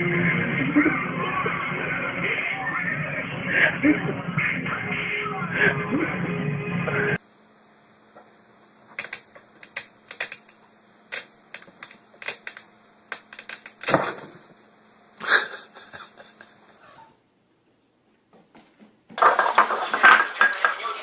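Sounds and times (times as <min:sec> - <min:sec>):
quick irregular taps and clicks: 0:08.9 - 0:14.0.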